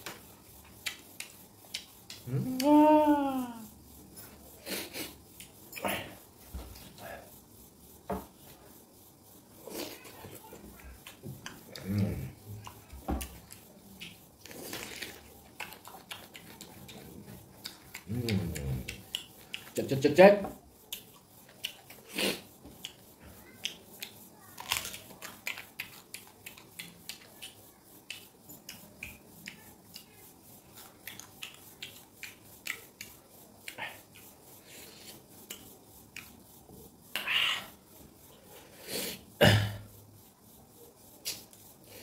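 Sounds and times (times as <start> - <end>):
person biting and chewing mango: 13.4 - 19.8, 24.0 - 28.8.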